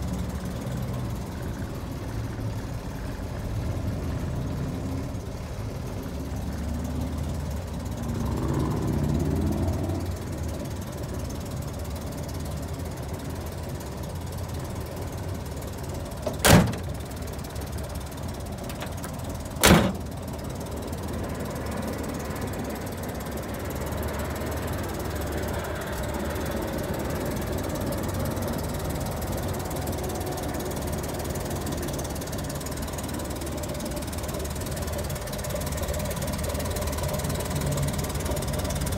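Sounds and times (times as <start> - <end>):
van engine idling: 0.0 - 38.9
loud thunks: 16.2 - 16.9, 19.6 - 20.0.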